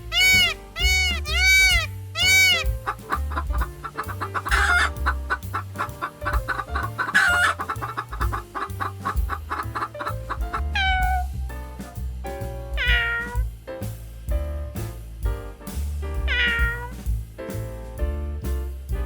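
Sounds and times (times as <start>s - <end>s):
chicken squawking: 0.0s - 11.2s
background music with bass: 0.0s - 19.0s
chickens clucking: 0.2s - 11.0s.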